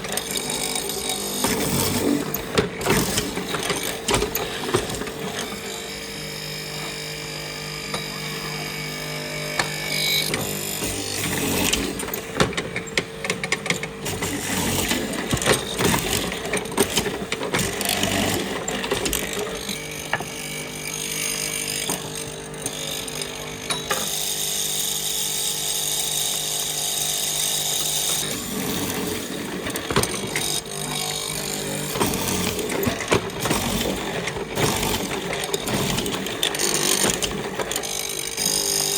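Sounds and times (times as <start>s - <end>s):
power tool motor whine: 0.0s - 38.9s
irregular clicks and knocks: 29.0s - 38.9s.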